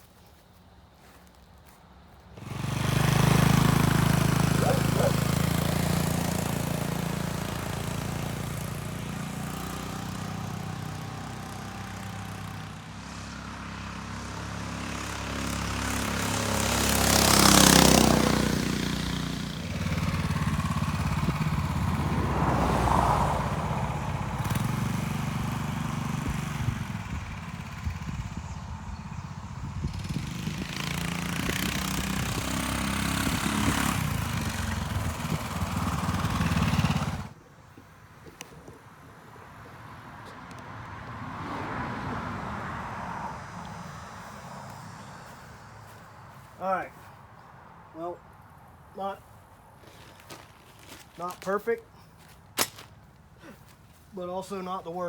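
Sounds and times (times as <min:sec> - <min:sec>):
dirt bike engine running: 0:02.4 - 0:37.4, 0:49.8 - 0:54.1
wind rush on microphone: 0:26.2 - 0:35.8.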